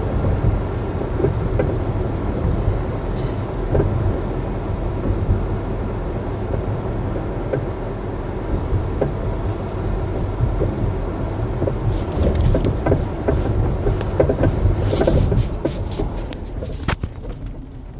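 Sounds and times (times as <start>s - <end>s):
road rumble: 0.0s - 17.9s
suspension knocks: 10.1s - 17.9s.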